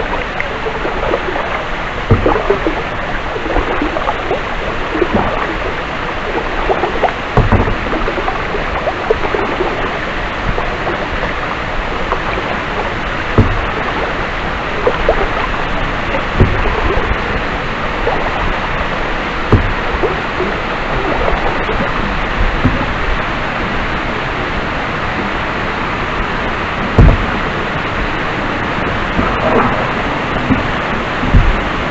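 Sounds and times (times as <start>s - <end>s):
low thumps: 0.0s - 23.7s, 26.8s - 31.9s
flowing water rushing: 0.0s - 31.9s
paddle strokes splashing: 0.0s - 31.9s.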